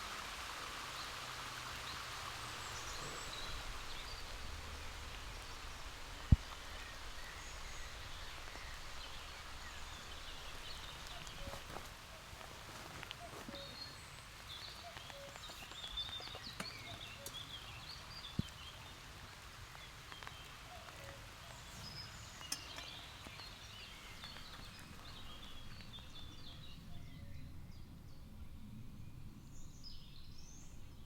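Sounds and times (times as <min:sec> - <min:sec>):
birds chirping and singing: 0:02.6 - 0:19.1, 0:19.8 - 0:28.0.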